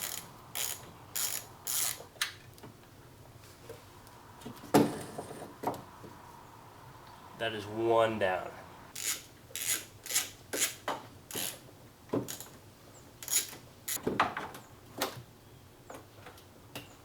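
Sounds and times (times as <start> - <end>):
hand ratchet clicking: 0.0 - 2.0, 9.0 - 11.6, 13.2 - 14.0.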